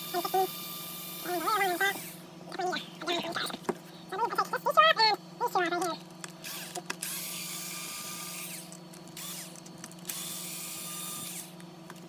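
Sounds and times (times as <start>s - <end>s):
electric screwdriver whining: 6.4s - 11.6s.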